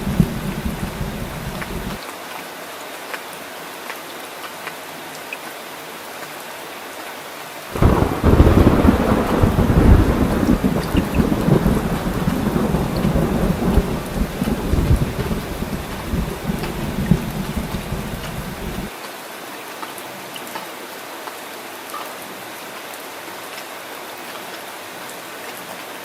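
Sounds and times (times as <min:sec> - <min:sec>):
loud thunder rumble: 0:00.0 - 0:02.0, 0:07.8 - 0:18.9
raindrop ticks: 0:00.0 - 0:02.0, 0:07.8 - 0:18.9
steady rain: 0:00.0 - 0:26.0.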